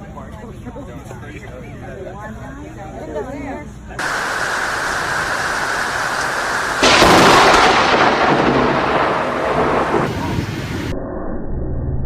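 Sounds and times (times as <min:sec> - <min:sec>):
steady rain: 0:04.0 - 0:10.9
thunderclap: 0:04.0 - 0:10.9.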